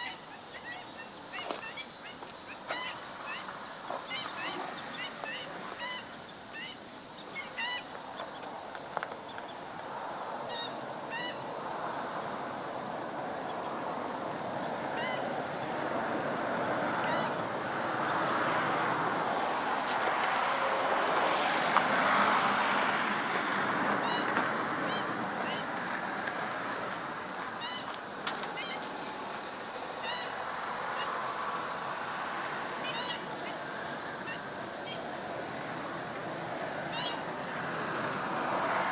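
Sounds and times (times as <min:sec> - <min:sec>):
bird yelping calls: 0:00.0 - 0:07.9
background hiss: 0:00.0 - 0:38.9.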